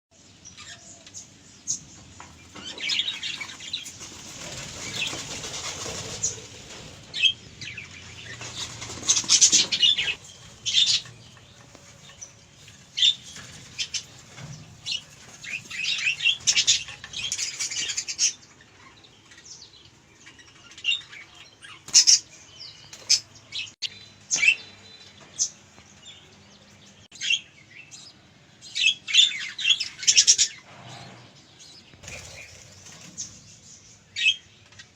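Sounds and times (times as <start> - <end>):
budgerigars chirping and chattering: 0.5 - 23.7, 27.1 - 30.7.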